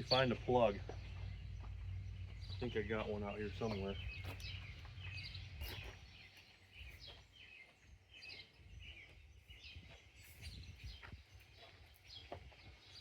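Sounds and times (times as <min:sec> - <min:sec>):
low background rumble: 0:00.0 - 0:07.0
small birds chirping: 0:00.0 - 0:13.0.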